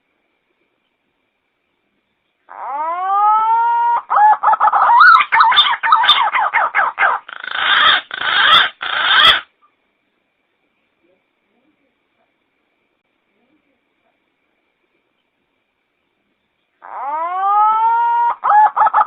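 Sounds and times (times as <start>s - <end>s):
pigeon call: 2.5s - 9.5s, 16.8s - 19.0s.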